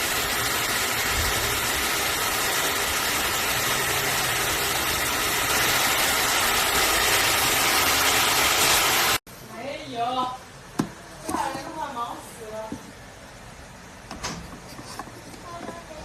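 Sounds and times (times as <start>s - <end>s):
hair dryer blowing: 0.0s - 9.2s.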